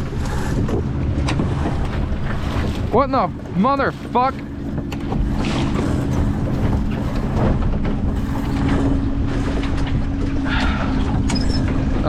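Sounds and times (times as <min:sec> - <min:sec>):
wind on microphone: 0:00.0 - 0:03.6
constant low hum: 0:00.0 - 0:12.0.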